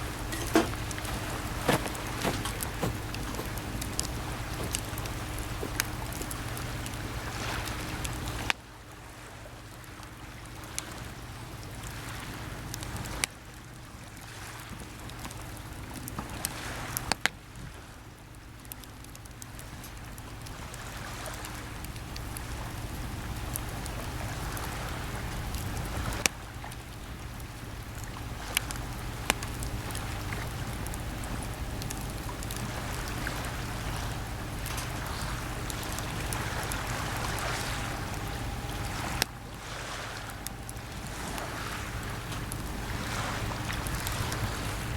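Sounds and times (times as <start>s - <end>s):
campfire crackling and popping: 0.0s - 8.6s, 21.4s - 39.6s
sea waves on shore: 0.0s - 18.0s, 19.6s - 44.9s.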